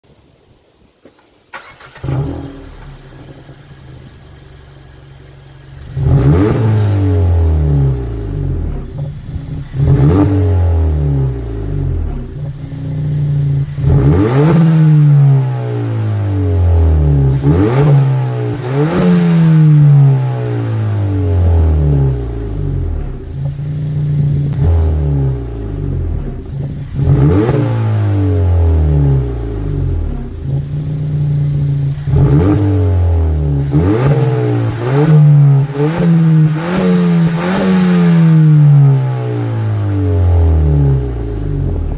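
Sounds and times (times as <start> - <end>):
car engine starting and idling: 1.1 - 41.9
car engine revving: 1.6 - 41.9.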